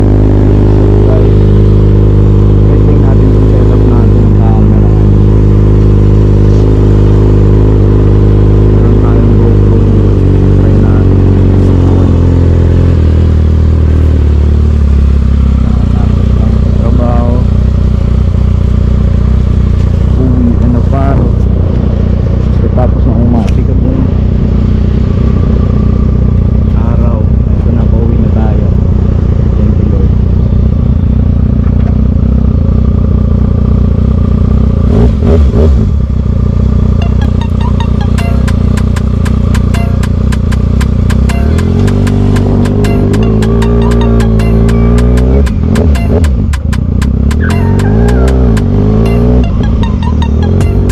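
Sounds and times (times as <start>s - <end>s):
motorcycle engine running: 0.0s - 50.9s
regular ticking: 37.0s - 50.9s.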